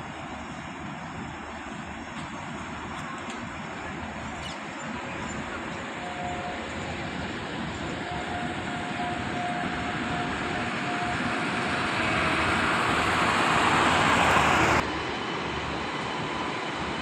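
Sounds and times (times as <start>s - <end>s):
train passing rumble: 0.0s - 17.0s.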